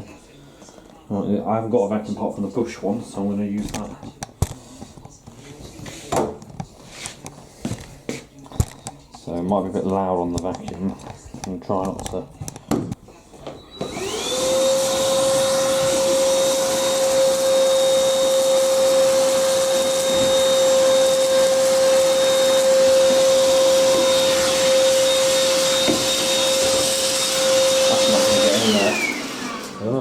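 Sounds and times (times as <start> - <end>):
vacuum cleaner whining: 13.4 - 30.0.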